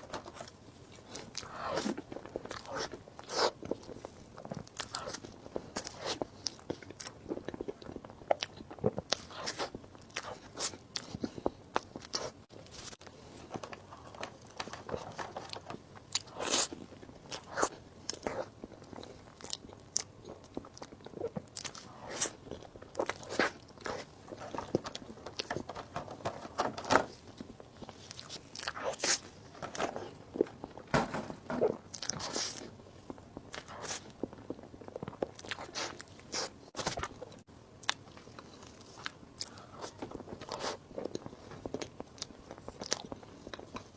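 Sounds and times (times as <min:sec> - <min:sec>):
biting and chewing: 0:00.0 - 0:43.9.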